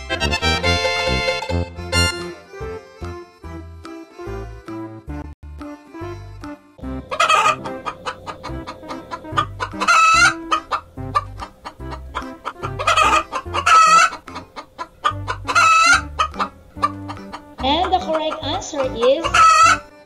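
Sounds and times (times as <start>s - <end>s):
hen clucking: 6.8s - 19.9s.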